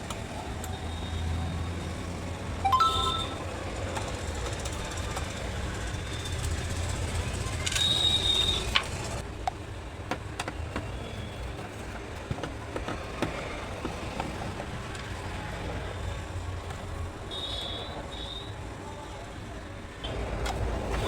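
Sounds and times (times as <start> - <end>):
short high tone: 2.6 - 3.6.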